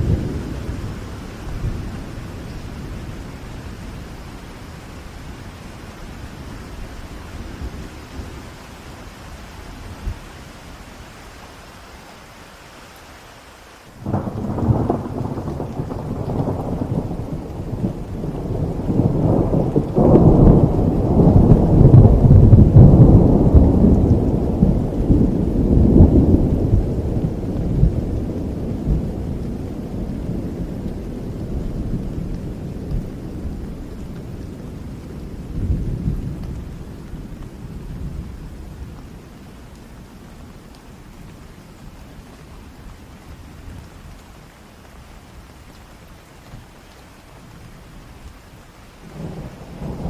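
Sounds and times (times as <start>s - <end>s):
steady rain: 0.0s - 50.0s
thunder rolling: 14.0s - 36.7s, 49.1s - 50.0s.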